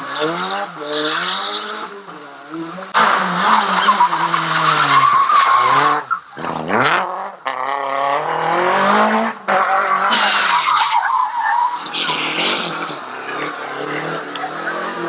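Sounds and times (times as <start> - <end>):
car engine revving hard: 0.0 - 15.0
tyres squealing and skidding: 2.9 - 8.7, 9.5 - 15.0.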